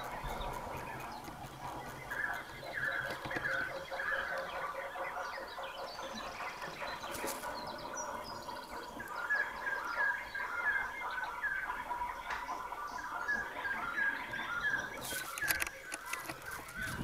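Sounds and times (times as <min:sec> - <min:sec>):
birds chirping: 0:00.0 - 0:17.0
sharp click: 0:15.0 - 0:17.0.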